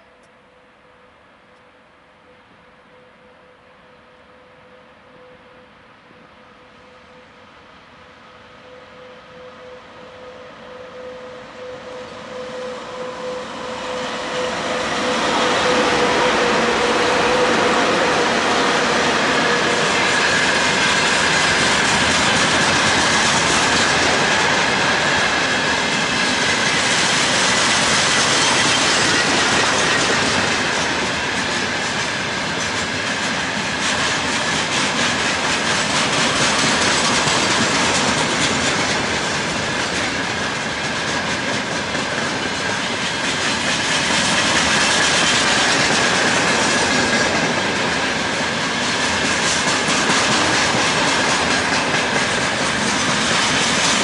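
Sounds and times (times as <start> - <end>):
train wheels on rails: 6.6 - 54.0
wheels clacking over rail joints: 16.2 - 54.0.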